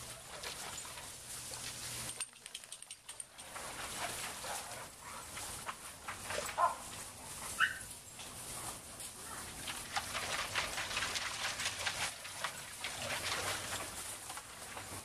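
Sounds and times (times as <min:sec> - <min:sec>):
dog yelping: 0:07.6 - 0:07.9.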